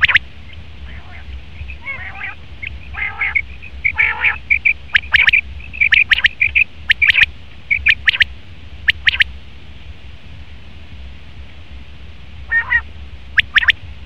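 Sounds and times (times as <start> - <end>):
quail calling: 0.0 - 8.3, 8.9 - 9.3, 12.5 - 13.8
lower buzzy quail calls: 0.0 - 9.3, 12.5 - 13.8.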